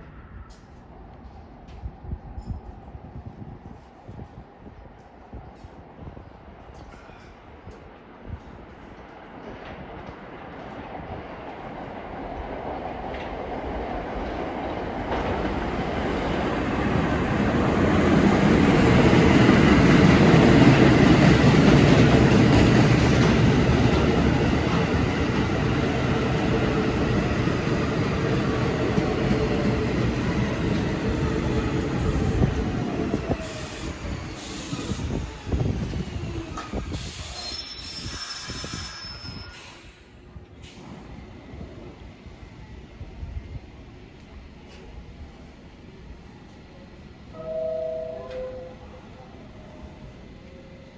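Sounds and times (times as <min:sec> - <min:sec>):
subway train rumbling on rails: 0:00.0 - 0:50.9
high-pitched wheel squeal: 0:36.9 - 0:40.0.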